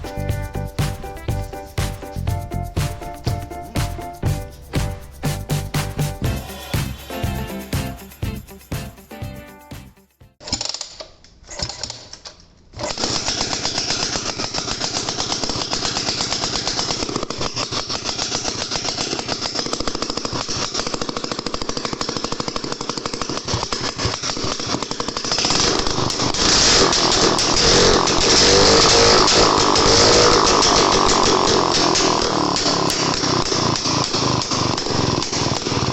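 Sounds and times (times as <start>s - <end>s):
two-stroke engine sputtering and running: 12.9s - 35.9s.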